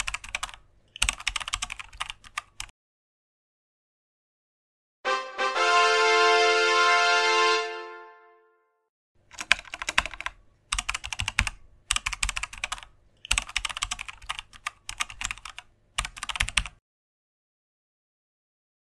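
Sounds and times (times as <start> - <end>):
keyboard typing clicks: 0.0 - 2.7, 9.2 - 16.8
music chord: 5.0 - 8.9.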